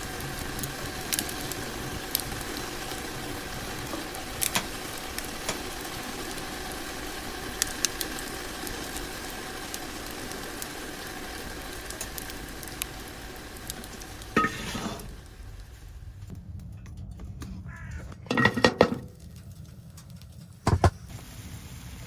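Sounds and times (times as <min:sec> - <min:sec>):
food sizzling in a pan: 0:00.4 - 0:15.2.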